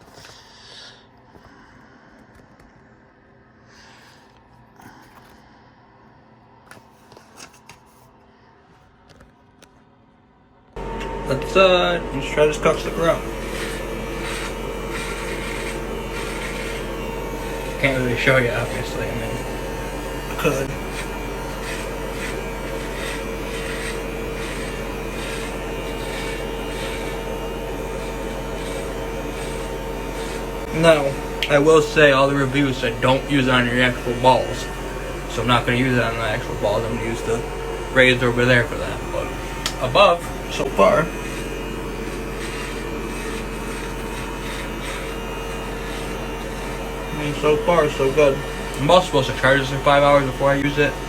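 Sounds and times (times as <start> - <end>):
electric trimmer humming: 10.8 - 51.0
trimmer blades rasping through hair: 10.8 - 51.0.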